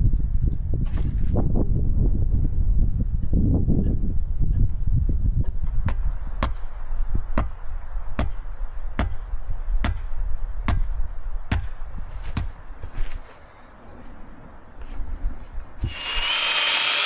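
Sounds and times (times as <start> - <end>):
sharp strikes of hand tool: 15.8 - 17.0.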